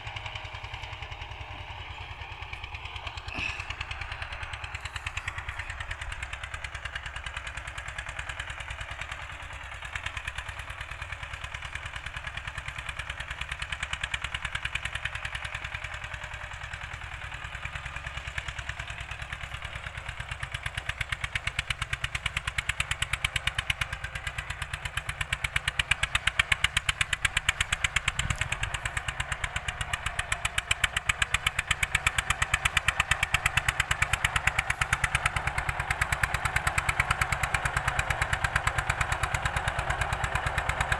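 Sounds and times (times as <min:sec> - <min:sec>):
tractor diesel engine chugging: 0:00.0 - 0:40.9.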